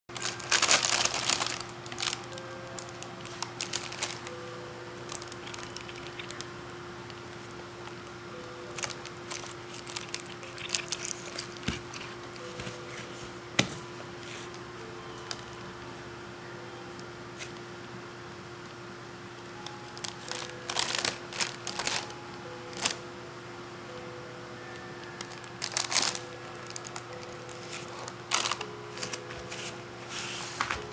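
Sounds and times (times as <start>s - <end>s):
plastic bag crinkling: 0.1s - 4.4s, 5.0s - 6.5s, 8.6s - 12.5s, 19.8s - 23.0s, 25.2s - 29.7s
faint steady hum: 0.1s - 30.9s.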